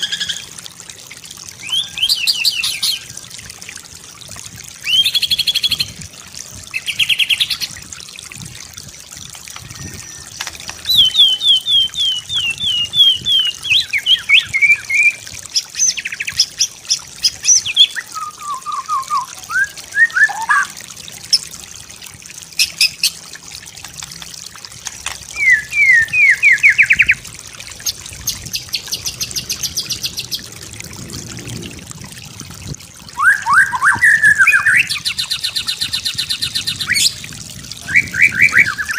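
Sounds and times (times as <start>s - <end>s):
water trickling: 0.0s - 38.9s
bird singing whistles: 10.8s - 15.2s, 17.7s - 20.7s, 25.4s - 27.1s, 33.2s - 35.0s, 37.9s - 38.9s.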